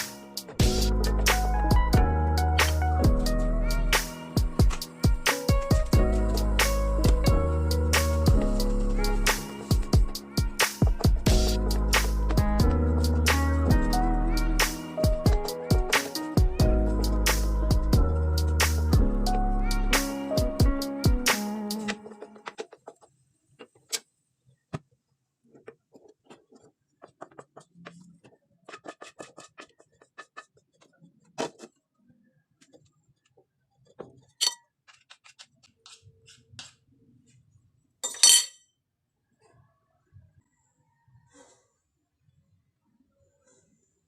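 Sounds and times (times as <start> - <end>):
dishes rattling: 38.0 - 38.6
utensils clinking against plates: 38.0 - 38.6.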